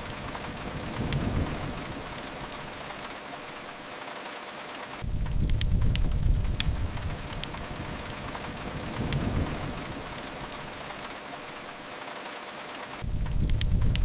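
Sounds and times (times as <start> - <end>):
crackling fireplace: 0.0 - 14.0
rain hiss: 0.0 - 14.0
low rumble: 5.0 - 10.9.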